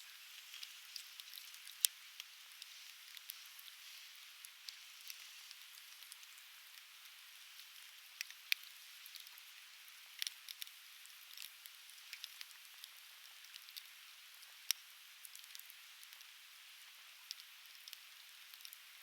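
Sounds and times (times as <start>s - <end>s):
firewood crackling and popping: 0.3s - 3.8s, 17.3s - 19.0s.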